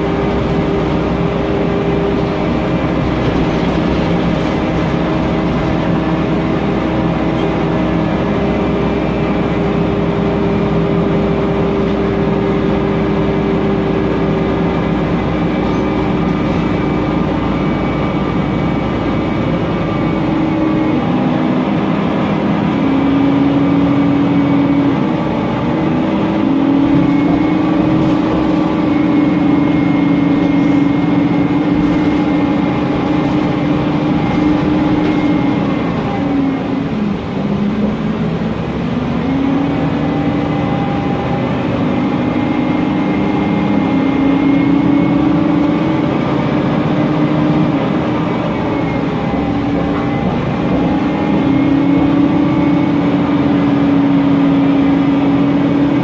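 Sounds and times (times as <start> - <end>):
bus engine hum: 0.0 - 56.0
cooling fan: 0.0 - 56.0.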